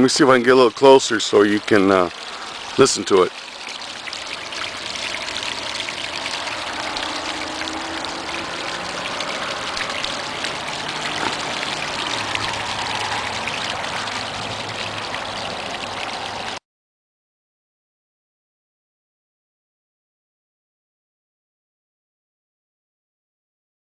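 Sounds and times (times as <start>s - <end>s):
waterfall rushing and splashing: 0.0s - 16.6s.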